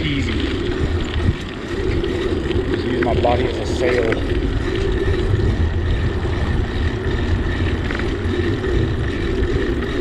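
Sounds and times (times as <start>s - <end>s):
bicycle road noise: 0.0s - 10.0s
wind on microphone: 0.0s - 10.0s.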